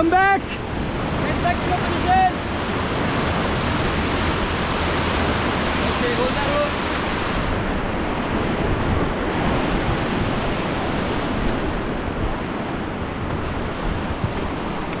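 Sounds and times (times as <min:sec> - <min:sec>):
river water roaring: 0:00.0 - 0:15.0
wind buffeting microphone: 0:00.6 - 0:15.0.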